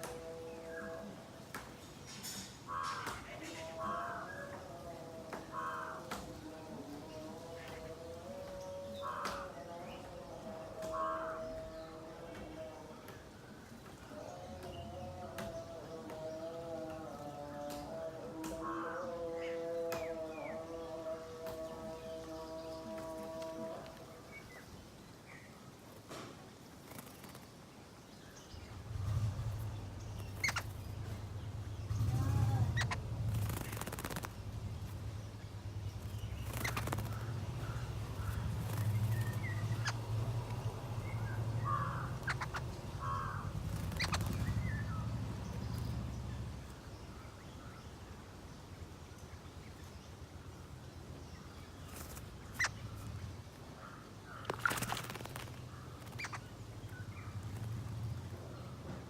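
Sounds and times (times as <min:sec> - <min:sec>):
bird chirps and calls: 0:28.6 - 0:47.4, 0:51.5 - 0:53.3, 0:55.8 - 0:57.8.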